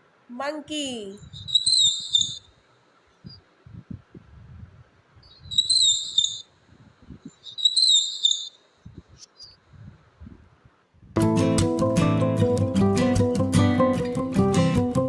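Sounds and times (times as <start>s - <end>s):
monkey calling: 1.4s - 2.4s, 5.3s - 6.4s, 7.4s - 8.5s.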